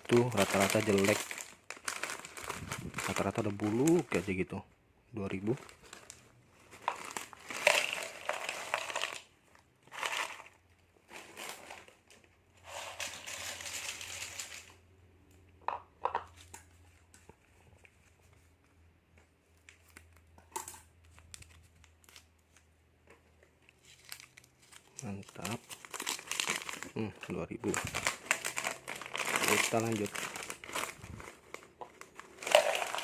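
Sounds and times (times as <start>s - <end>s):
snack packets crinkling: 0.0s - 4.4s, 5.3s - 10.6s, 12.7s - 14.8s, 23.6s - 33.0s.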